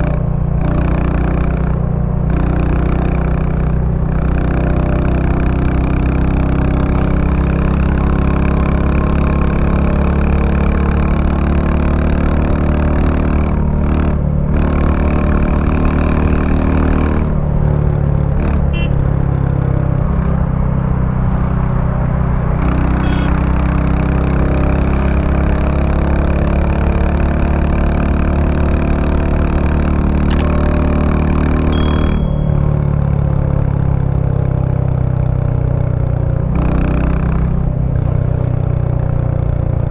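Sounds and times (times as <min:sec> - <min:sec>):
motorcycle engine thumping: 0:30.3 - 0:30.7.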